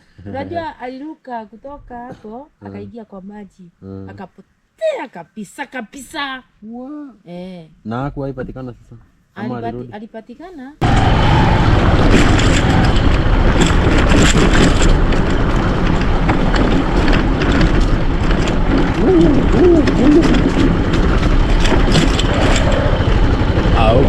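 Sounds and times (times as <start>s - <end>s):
vehicle running: 10.8s - 24.0s
wind buffeting microphone: 10.8s - 24.0s.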